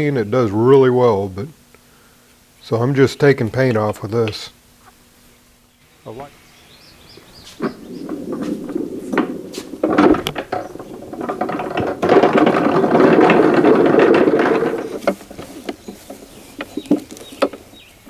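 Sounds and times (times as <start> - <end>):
scraping paint off metal: 7.4 - 17.6.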